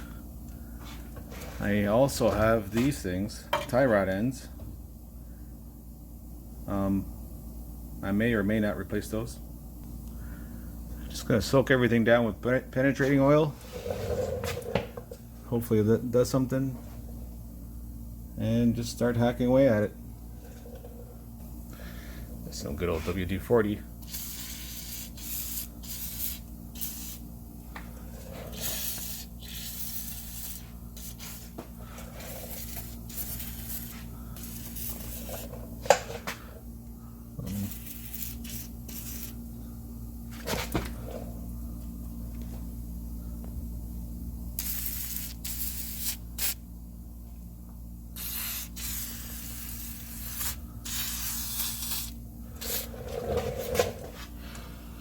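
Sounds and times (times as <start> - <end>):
aerosol can spraying: 24.0 - 27.3, 28.5 - 31.6, 32.2 - 35.5, 37.5 - 39.4, 44.6 - 46.6, 48.2 - 52.9.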